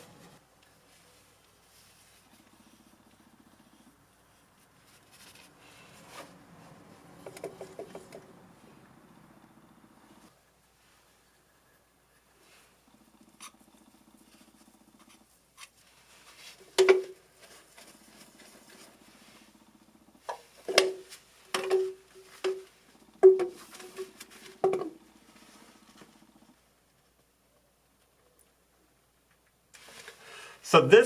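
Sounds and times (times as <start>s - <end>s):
plastic pipe knocking and clattering: 16.8s - 17.2s, 20.3s - 25.0s.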